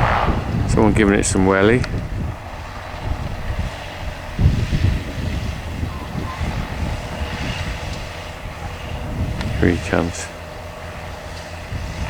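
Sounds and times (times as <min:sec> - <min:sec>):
distant engine: 0:00.0 - 0:12.0
wind buffeting microphone: 0:00.0 - 0:12.0.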